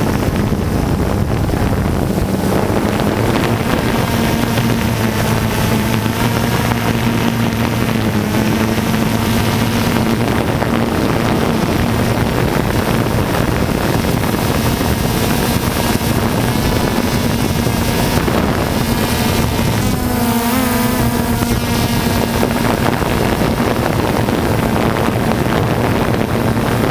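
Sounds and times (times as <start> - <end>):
quadcopter motors buzzing: 0.0 - 26.9
wind rushing over microphone: 0.0 - 26.9.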